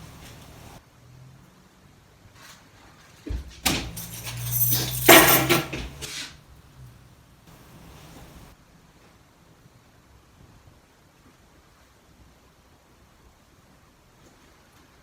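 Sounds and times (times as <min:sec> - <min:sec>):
clattering and rustling objects: 0:02.3 - 0:06.4.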